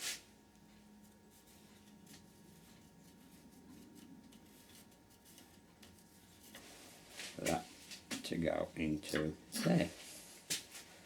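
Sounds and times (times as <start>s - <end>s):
pencil scratching on wood: 1.3s - 6.7s.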